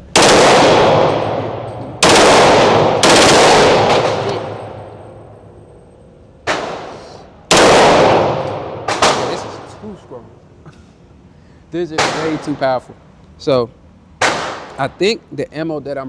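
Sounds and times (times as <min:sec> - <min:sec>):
pistol shots with echo: 0:00.0 - 0:05.6, 0:06.4 - 0:09.8, 0:12.0 - 0:12.7, 0:14.2 - 0:14.8.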